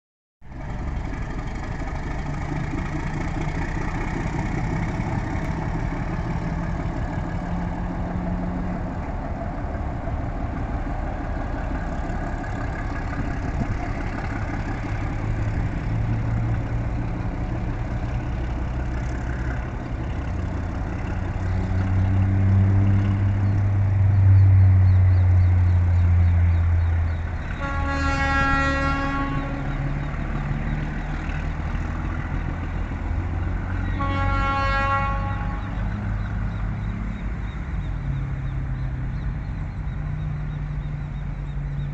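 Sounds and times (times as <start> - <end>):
diesel engine drone: 0.4 - 41.9
train rumbling on rails: 0.4 - 41.9
train horn blast: 27.5 - 30.0, 33.7 - 36.1.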